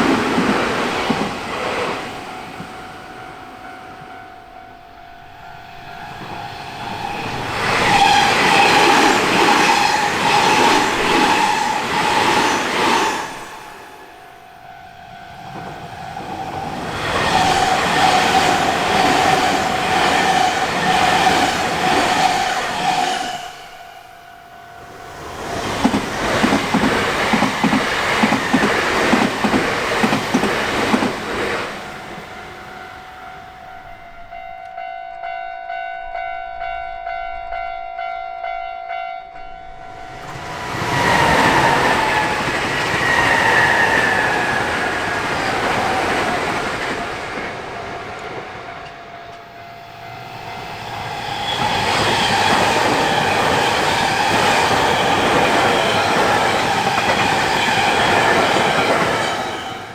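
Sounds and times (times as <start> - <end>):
train passing with falling whine: 0.0 - 34.9, 39.4 - 59.9
level crossing warning bell: 2.2 - 11.3, 31.9 - 40.2
train wheels clattering: 25.1 - 32.6, 40.1 - 59.9.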